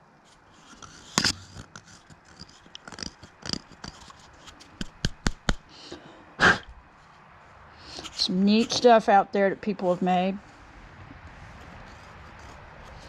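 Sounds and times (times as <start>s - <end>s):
rustling scrape: 0.2s - 5.0s, 6.9s - 9.0s, 9.8s - 13.0s.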